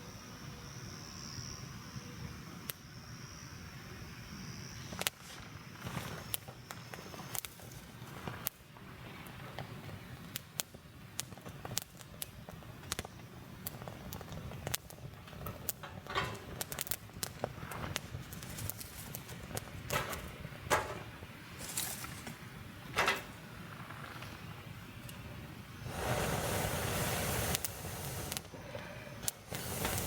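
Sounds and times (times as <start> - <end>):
campfire crackling and popping: 4.9 - 30.0
rustling or scraping noises: 15.8 - 24.4.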